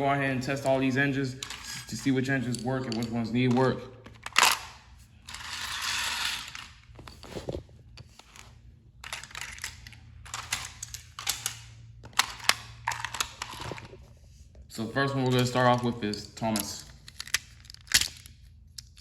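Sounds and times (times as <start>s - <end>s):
toy scraping slide: 5.3s - 6.7s
plastic toy trains clicking: 16.1s - 19.0s.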